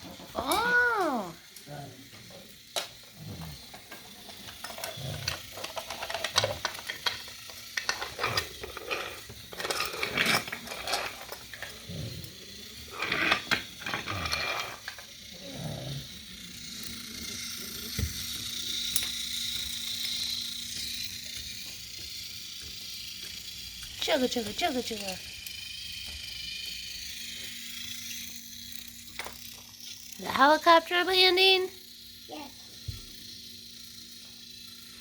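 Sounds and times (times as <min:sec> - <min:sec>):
wooden toy trains clattering: 0:02.1 - 0:15.2.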